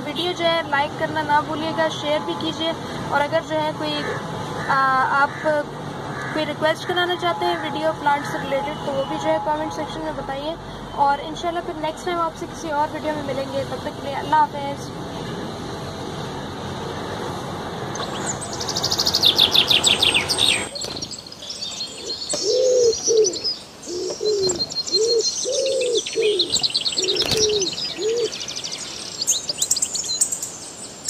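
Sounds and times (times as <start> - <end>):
birds chirping in high trills: 17.9 - 31.0.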